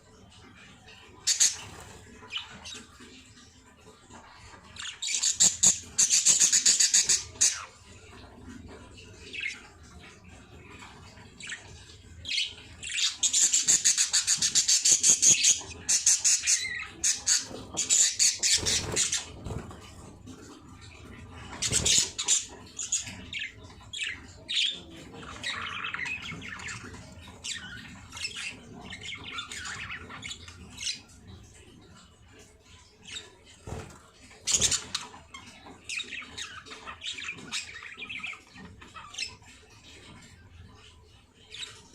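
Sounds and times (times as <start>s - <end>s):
baby birds squawking: 1.2s - 3.0s, 4.8s - 7.8s, 10.9s - 31.2s, 33.2s - 40.3s.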